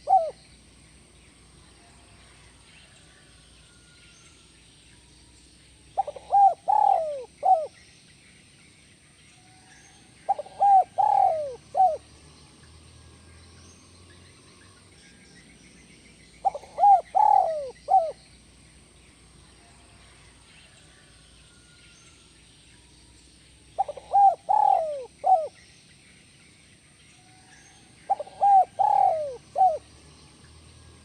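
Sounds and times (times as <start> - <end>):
dove cooing: 0.0 - 0.4, 5.9 - 7.8, 10.3 - 12.0, 16.4 - 18.3, 23.8 - 25.6, 28.1 - 29.9.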